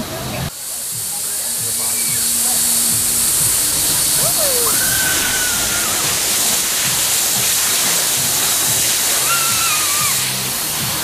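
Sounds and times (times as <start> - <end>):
rushing splashing water: 0.5 - 11.0
thin high wavering call: 1.8 - 6.2.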